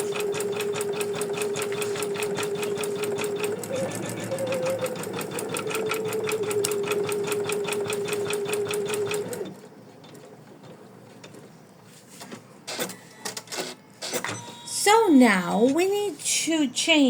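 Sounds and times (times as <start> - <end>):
embroidery machine stitching: 0.0 - 9.6.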